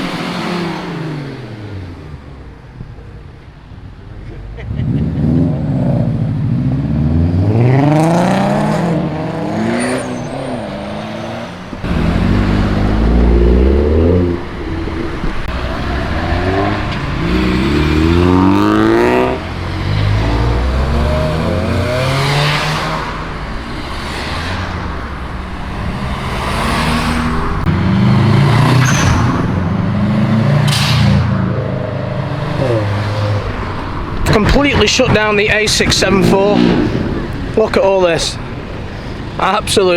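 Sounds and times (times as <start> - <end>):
cars accelerating past: 0.0 - 3.0, 3.7 - 39.9.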